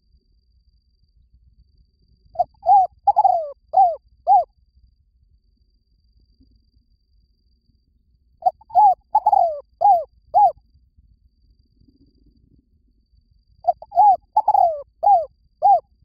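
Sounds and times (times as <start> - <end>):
dove cooing: 2.4 - 4.5, 8.4 - 10.6, 13.6 - 15.8.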